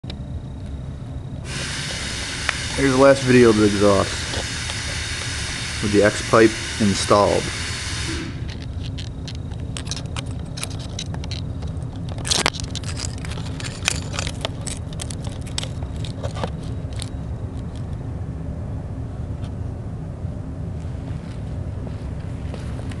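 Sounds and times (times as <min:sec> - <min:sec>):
car engine idling: 0:01.4 - 0:17.7
sharp clicks and scrapes: 0:08.4 - 0:17.8.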